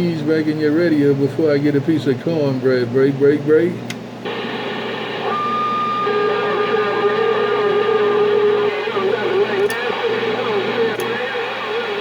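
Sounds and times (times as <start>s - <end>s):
radio static with hum: 4.2s - 12.0s.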